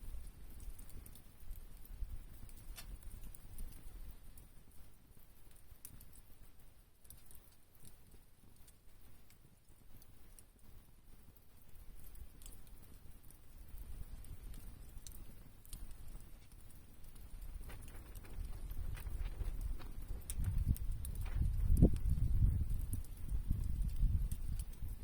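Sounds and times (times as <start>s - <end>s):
campfire crackling: 0.0s - 25.0s
sharp wood crack: 2.6s - 3.0s.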